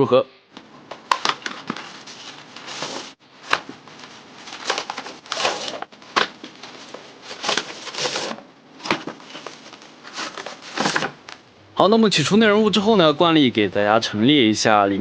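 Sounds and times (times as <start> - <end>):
plastic packaging rustling: 1.0 - 11.4.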